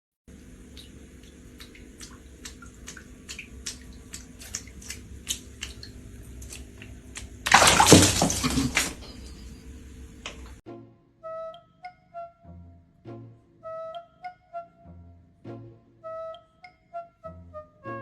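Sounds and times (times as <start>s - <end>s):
rush of splashing water: 0.3s - 9.5s
water dripping: 0.3s - 10.6s.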